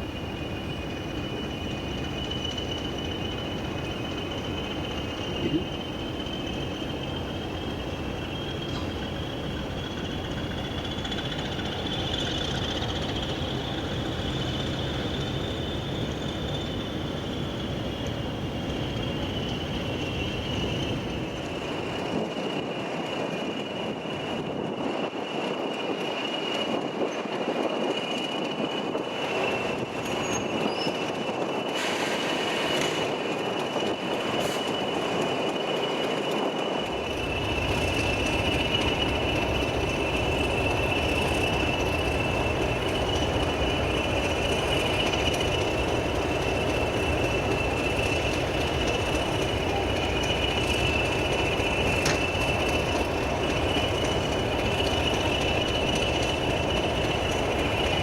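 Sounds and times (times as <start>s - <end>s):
train rumble: 0.0s - 58.0s
train wheels squealing on rails: 0.0s - 58.0s.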